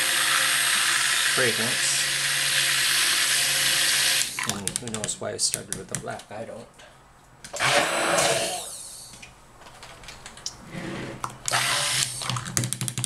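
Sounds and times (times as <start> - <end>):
stick blender running: 0.0 - 4.6, 7.5 - 9.0, 11.5 - 12.5.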